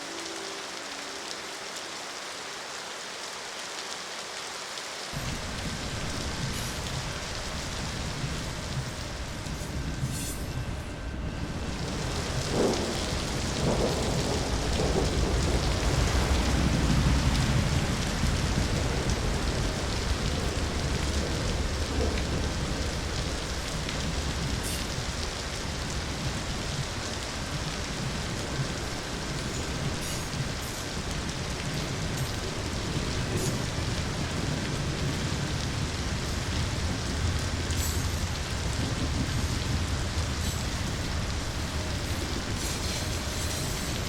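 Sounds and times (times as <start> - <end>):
heavy rain: 0.0 - 44.0
rolling thunder: 5.2 - 44.0.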